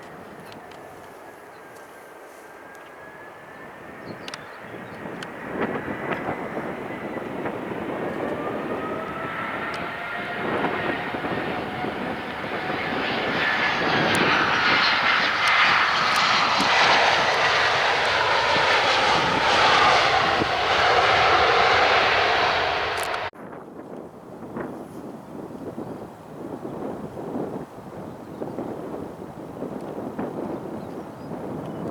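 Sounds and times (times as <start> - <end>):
jet airliner engines passing: 0.0 - 23.4.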